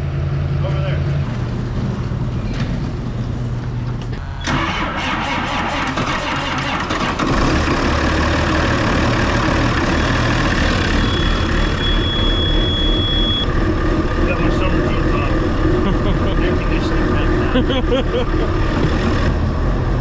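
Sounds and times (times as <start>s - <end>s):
engine starting: 4.2s - 8.5s.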